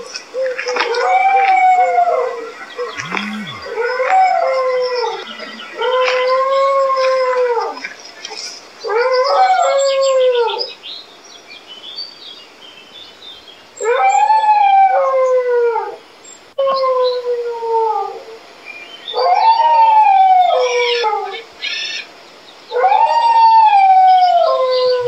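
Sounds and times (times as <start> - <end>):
dogs howling: 0.8 - 7.9, 8.8 - 10.6, 19.1 - 21.4, 22.7 - 25.0
short low falling sound: 3.0 - 3.8.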